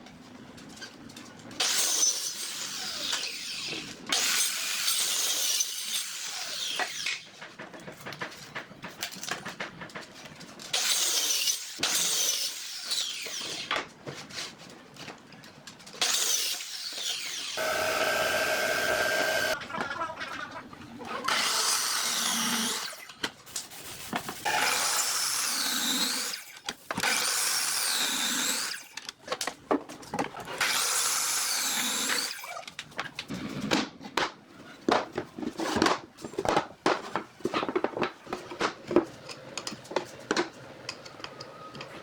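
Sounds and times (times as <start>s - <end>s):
power tool working wood: 17.3s - 19.6s.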